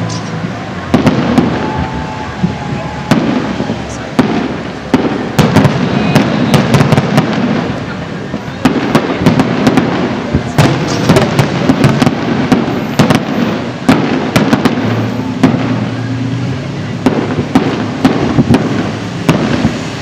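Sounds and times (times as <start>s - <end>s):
fireworks bangs and cracks: 0.0s - 20.0s
fireworks booms rumbling: 0.0s - 20.0s.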